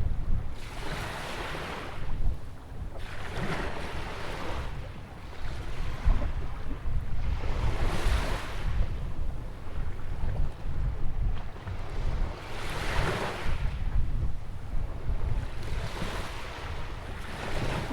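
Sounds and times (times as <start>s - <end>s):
wind rumble on microphone: 0.0s - 17.9s
ocean waves breaking: 15.6s - 17.9s.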